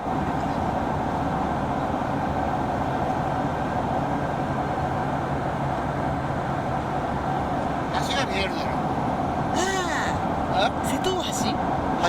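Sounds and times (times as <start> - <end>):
airliner cabin engine rush: 0.0 - 12.0
constant low hum: 0.0 - 12.0.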